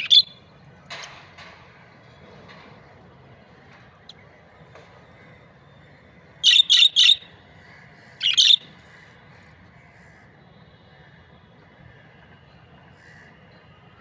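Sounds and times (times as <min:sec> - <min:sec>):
budgerigar chirping: 0:00.0 - 0:00.3, 0:06.4 - 0:07.3, 0:08.2 - 0:08.7.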